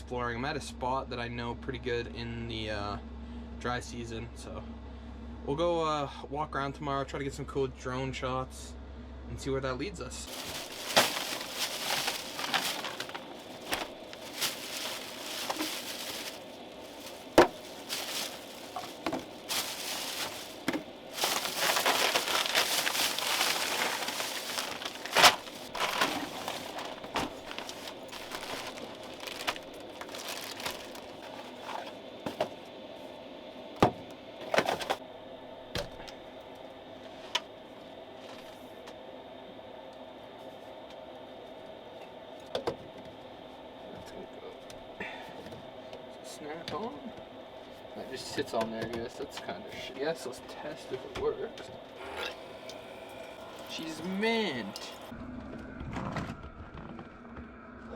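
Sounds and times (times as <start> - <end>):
rustling and crinkling: 10.3 - 32.6, 34.4 - 35.0, 53.2 - 55.1.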